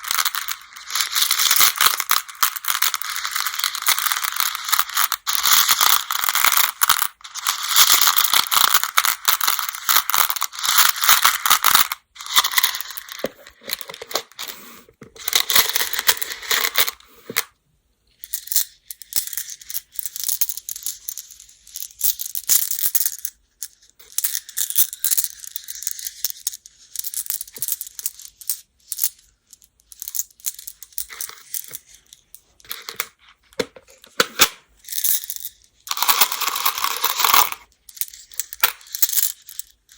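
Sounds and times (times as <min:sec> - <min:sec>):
game stones clattering: 0:00.0 - 0:17.5, 0:30.0 - 0:39.7.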